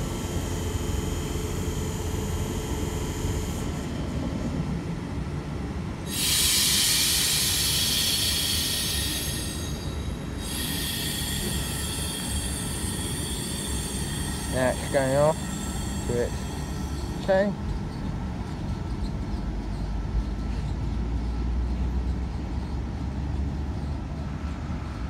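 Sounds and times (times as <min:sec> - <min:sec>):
train rumble and hum: 0:00.0 - 0:25.0
loud air hiss: 0:06.1 - 0:17.4.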